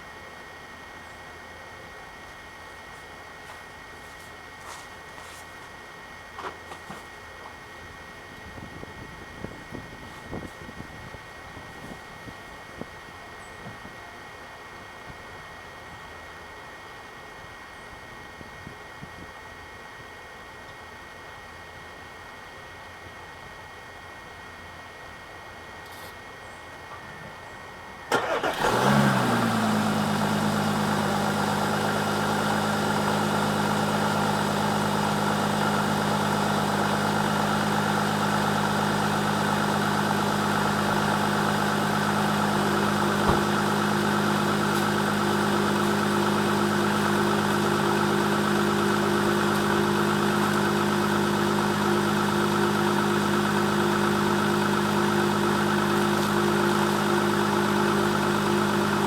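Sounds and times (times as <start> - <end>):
diesel engine cold idle: 28.0 - 59.0.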